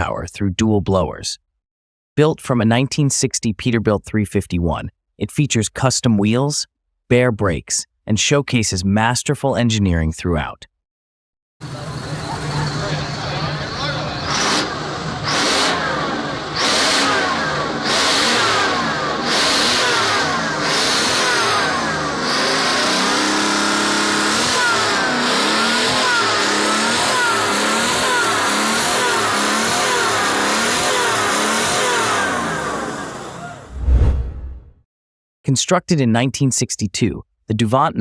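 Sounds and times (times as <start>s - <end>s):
diesel engine revving: 11.6s - 34.1s.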